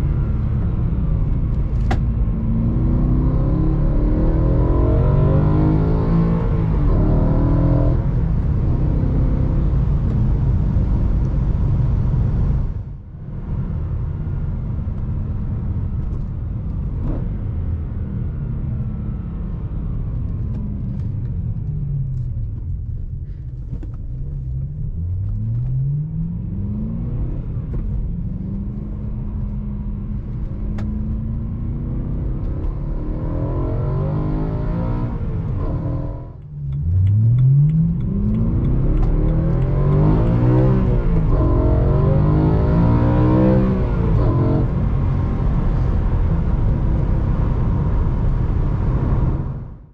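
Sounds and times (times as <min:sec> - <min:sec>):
car engine revving: 0:00.0 - 0:12.4, 0:24.2 - 0:49.9.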